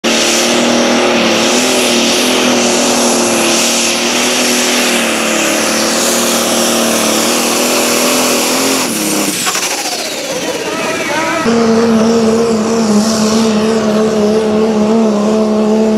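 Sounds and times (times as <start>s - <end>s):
engine at full throttle: 0.0s - 15.9s.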